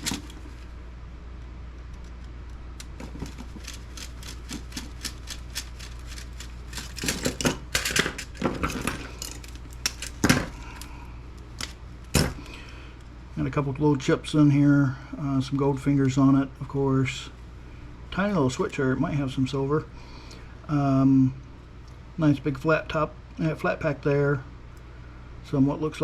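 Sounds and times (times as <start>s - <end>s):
steady low hum: 0.0s - 26.0s
laptop parts clicking and clinking: 1.9s - 10.9s.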